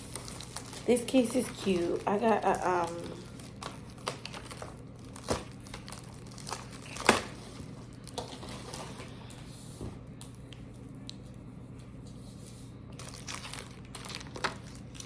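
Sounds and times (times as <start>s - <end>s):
plastic packaging crinkling: 0.0s - 9.3s, 12.9s - 15.0s.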